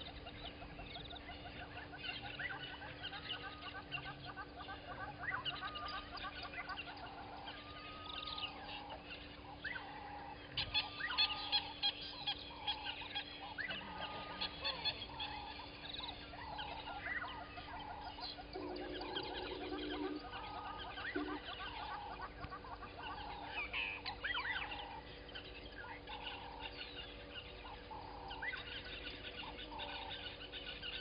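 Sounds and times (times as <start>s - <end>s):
high bird chirps and trills: 0.0s - 31.0s
low coarse bird call: 9.6s - 25.1s
bird call repeated: 18.5s - 22.2s.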